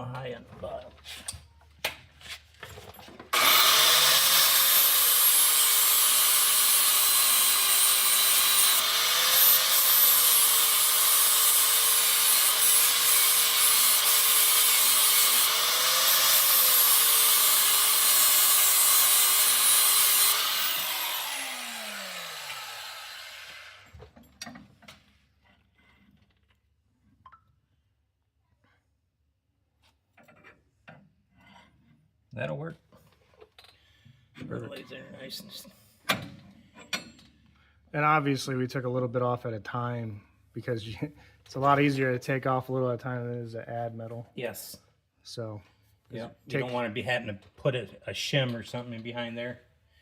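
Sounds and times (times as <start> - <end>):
electric grinder grinding metal: 3.3 - 24.0.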